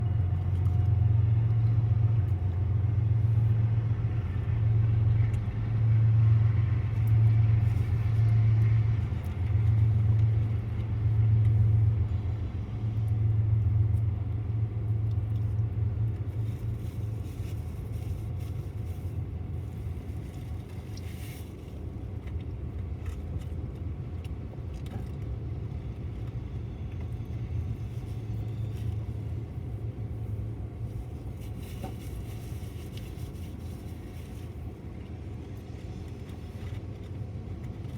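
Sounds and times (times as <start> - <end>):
diesel locomotives rumbling: 0.0 - 37.9.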